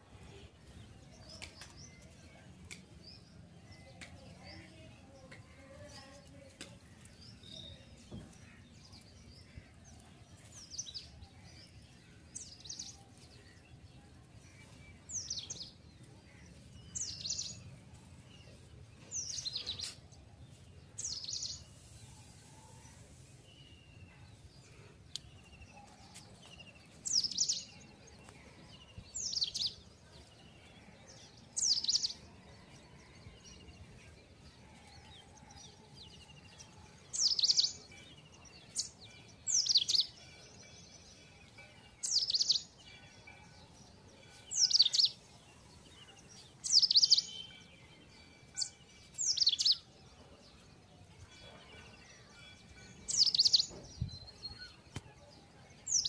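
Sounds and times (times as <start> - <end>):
faint background noise: 0.0 - 56.0.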